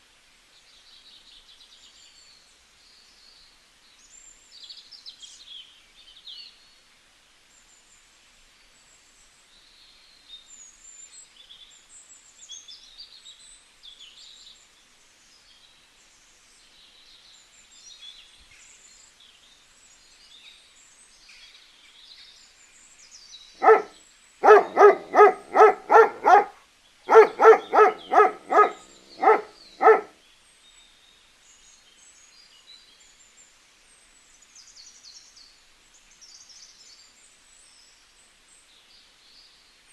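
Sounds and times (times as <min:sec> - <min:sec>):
small birds chirping: 0:23.6 - 0:30.1.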